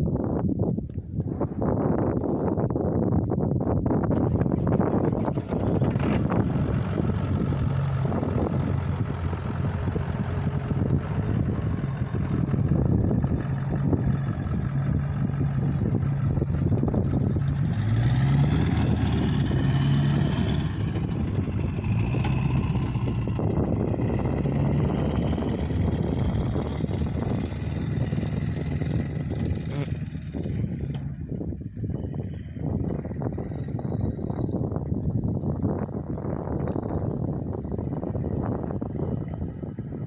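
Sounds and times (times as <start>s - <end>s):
truck engine running: 3.1s - 40.0s.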